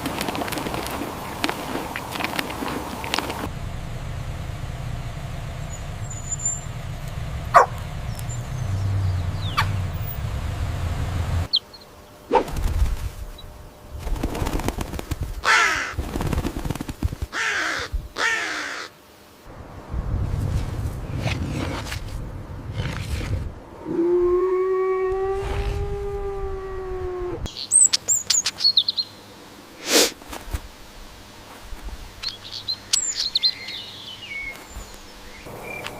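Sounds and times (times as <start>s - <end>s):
low steady rumble: 0.8s - 11.5s, 19.5s - 27.5s
bird cawing harshly: 15.4s - 16.0s, 17.3s - 19.0s.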